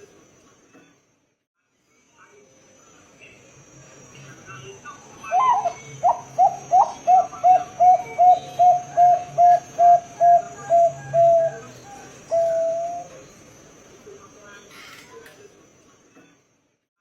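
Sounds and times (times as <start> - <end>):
dove cooing: 5.2 - 13.2.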